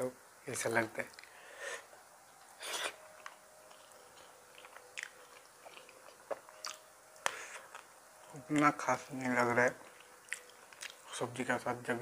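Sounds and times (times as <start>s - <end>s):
short breaths: 1.3s - 1.9s
chewing food: 2.6s - 8.8s, 9.8s - 11.2s.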